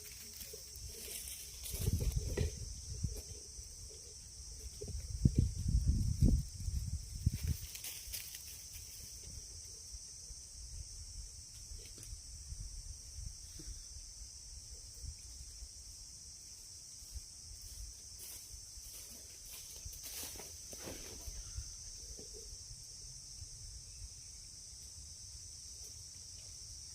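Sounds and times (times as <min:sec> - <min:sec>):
wind rumble on microphone: 0:01.5 - 0:03.4, 0:04.5 - 0:07.8.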